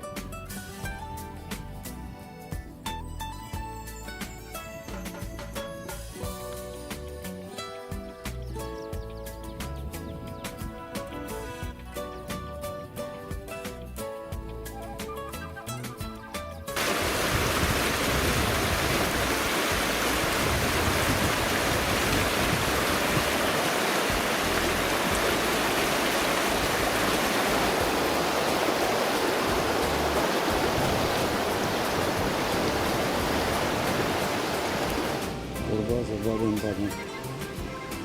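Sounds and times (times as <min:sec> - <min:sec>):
river water rushing: 0:16.8 - 0:35.7.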